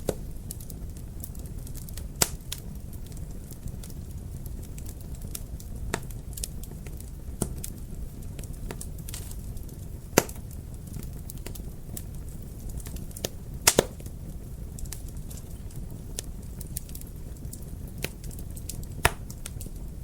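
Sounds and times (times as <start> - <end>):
fire burning low rumble: 0.0 - 20.0
fire crackling with sharp pops: 0.0 - 20.0.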